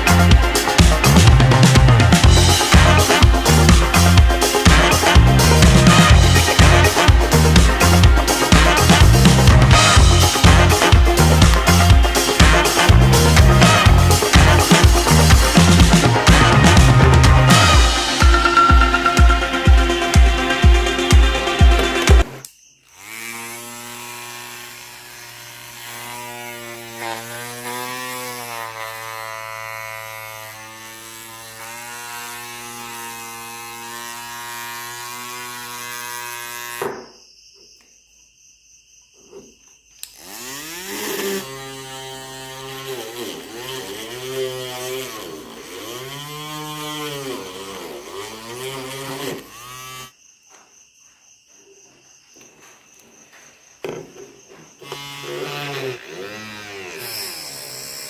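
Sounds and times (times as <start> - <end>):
small motor whirring with high whine: 54.8 - 58.0.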